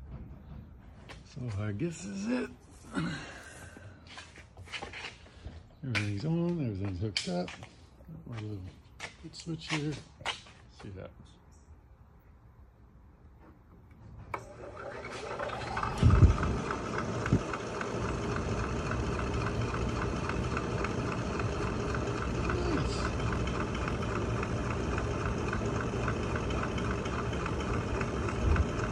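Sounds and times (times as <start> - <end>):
fan motor whirring: 13.6 - 28.9.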